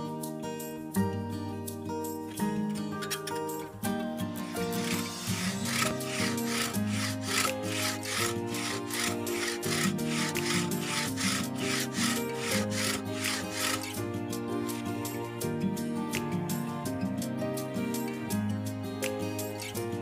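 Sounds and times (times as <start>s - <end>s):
background music: 0.0s - 20.0s
rasping strokes on wood: 4.5s - 14.0s.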